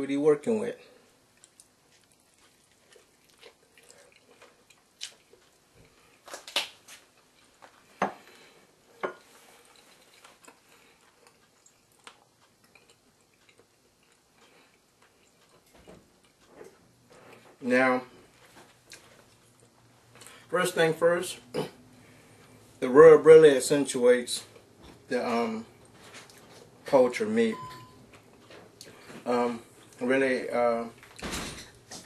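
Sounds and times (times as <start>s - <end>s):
person chewing food: 1.0s - 17.6s, 18.3s - 20.5s, 25.7s - 26.8s.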